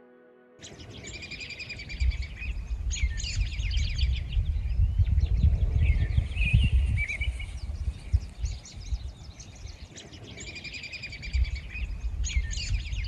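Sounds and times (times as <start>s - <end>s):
bird trill: 0.6s - 4.3s
birds singing and chirping: 0.6s - 13.0s.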